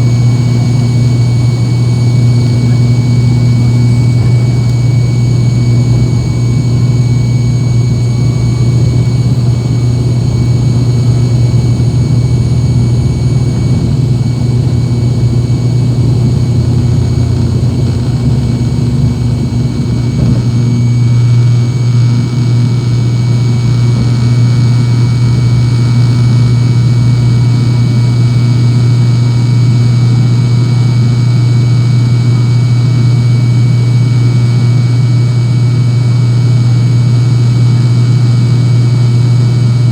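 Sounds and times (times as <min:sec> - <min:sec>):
rough low rumble: 0:00.0 - 0:25.7
propeller drone in cabin: 0:00.0 - 0:39.9.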